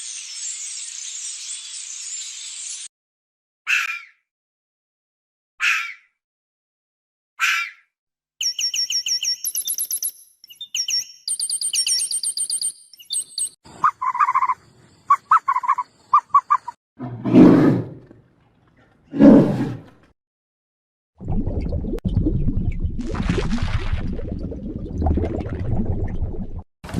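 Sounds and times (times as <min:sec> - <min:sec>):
high chirping trills: 0:08.4 - 0:16.8
animal calls: 0:13.7 - 0:16.8
low roar-like calls: 0:17.0 - 0:18.2.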